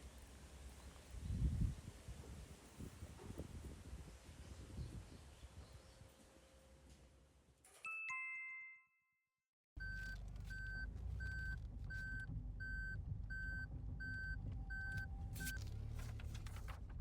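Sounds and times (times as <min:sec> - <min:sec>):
reverse warning beeps: 0:09.8 - 0:15.6
low engine rumble: 0:09.8 - 0:17.0.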